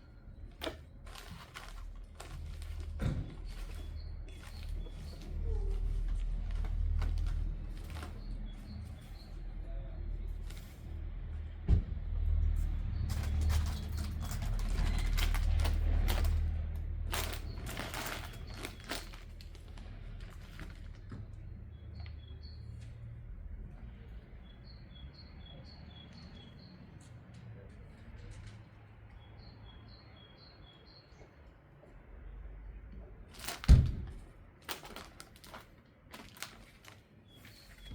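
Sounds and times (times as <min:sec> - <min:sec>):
small birds chirping: 0:00.0 - 0:10.9, 0:17.1 - 0:31.5, 0:36.5 - 0:37.9.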